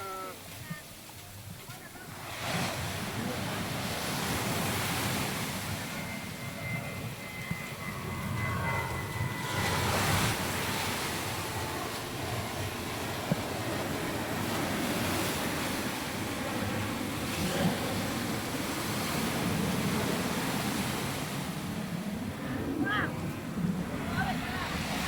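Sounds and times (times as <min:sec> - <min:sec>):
surf washing on beach: 0:00.0 - 0:06.8, 0:09.4 - 0:25.0
passing engine drone: 0:02.6 - 0:25.0.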